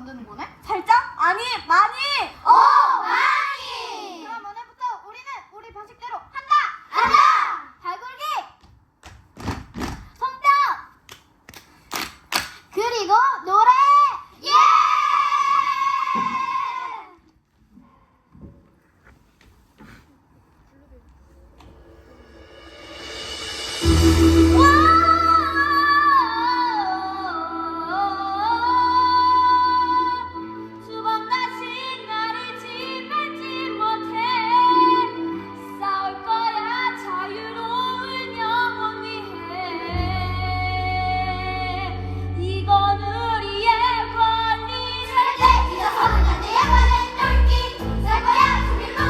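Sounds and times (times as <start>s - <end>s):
steady low beat: 21.4s - 26.8s
sustained backing chords: 21.6s - 49.0s
high voice singing: 23.7s - 38.8s.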